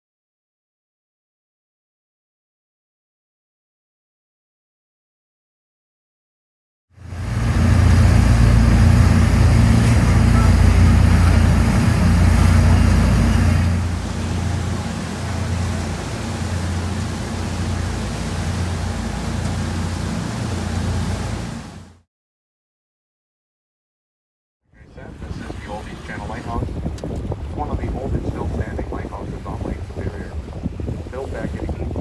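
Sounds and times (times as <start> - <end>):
boat engine rumble: 7.0 - 22.0, 24.8 - 32.0
rushing water noise: 7.0 - 22.0.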